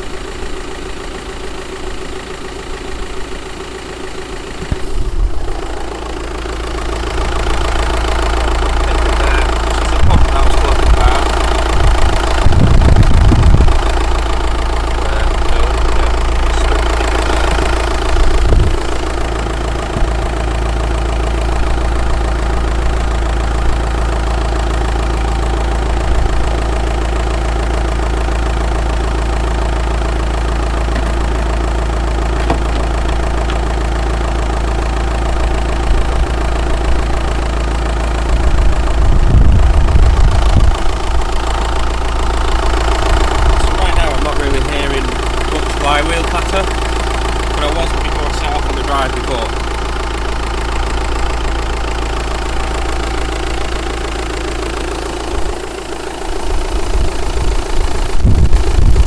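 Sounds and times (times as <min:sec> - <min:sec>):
diesel engine idling with clatter: 0:00.0 - 0:59.0
low thumps: 0:11.6 - 0:20.5, 0:30.6 - 0:33.8.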